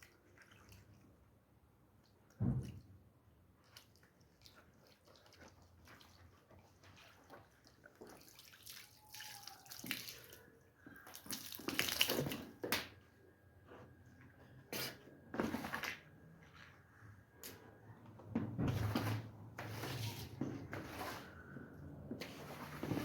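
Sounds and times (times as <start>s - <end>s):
wet clicks and squelches: 9.2s - 12.9s.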